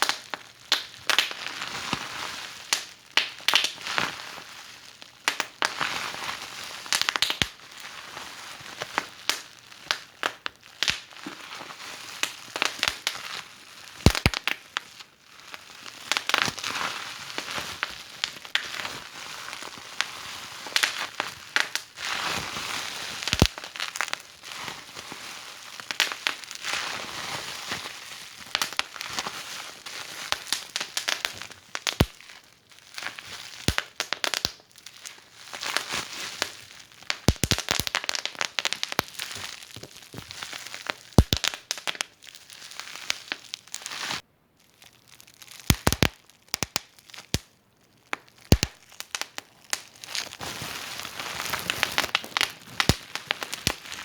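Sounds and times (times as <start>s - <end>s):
sharp fire pops: 14.0s - 14.6s, 37.1s - 39.3s, 41.2s - 42.0s, 45.7s - 47.4s, 48.5s - 49.8s, 51.2s - 54.0s
wood fire crackling: 14.0s - 14.6s, 23.2s - 24.1s, 33.1s - 34.7s, 36.4s - 42.2s, 45.4s - 47.5s, 48.1s - 54.0s.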